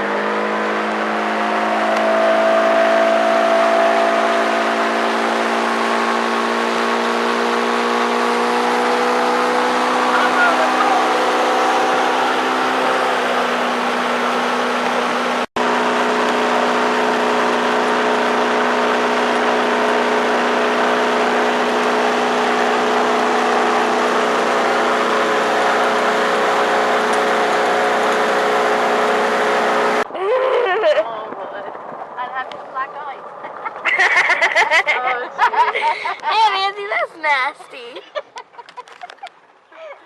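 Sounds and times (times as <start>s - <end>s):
motorboat engine hum: 0.0s - 31.0s.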